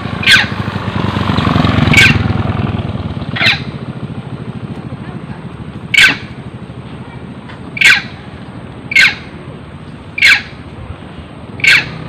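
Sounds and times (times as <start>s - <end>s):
monkey screaming: 0.1s - 0.6s, 1.9s - 2.3s, 3.3s - 3.8s, 5.9s - 6.4s, 7.8s - 8.2s, 8.9s - 9.4s, 10.2s - 10.6s, 11.6s - 12.0s.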